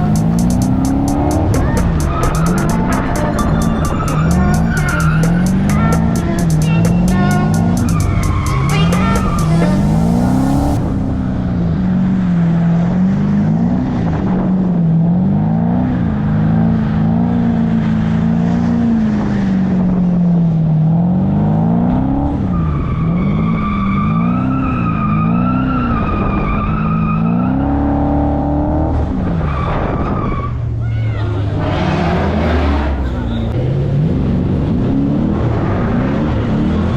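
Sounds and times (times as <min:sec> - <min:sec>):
tyres squealing: 0:00.0 - 0:10.2
car engine revving: 0:00.0 - 0:30.8, 0:31.4 - 0:36.9.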